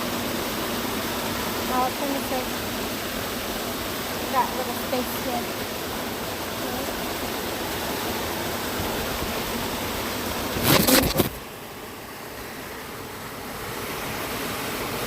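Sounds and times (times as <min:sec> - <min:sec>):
waterfall rushing: 0:00.0 - 0:11.6
rustle close to microphone: 0:10.4 - 0:11.4.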